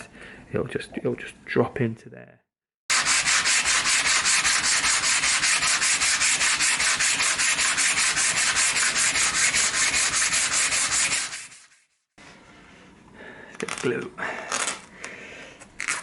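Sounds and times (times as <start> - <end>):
sandpaper rubbing on wood: 2.9 - 12.0.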